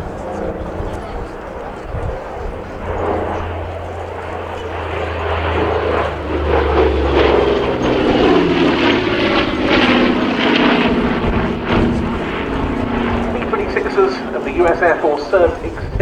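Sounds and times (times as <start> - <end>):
propeller plane engines flying past: 0.0 - 16.0.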